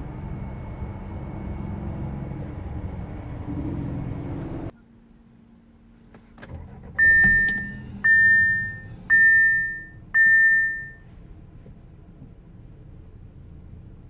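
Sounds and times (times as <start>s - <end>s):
car warning chime: 7.0s - 11.0s.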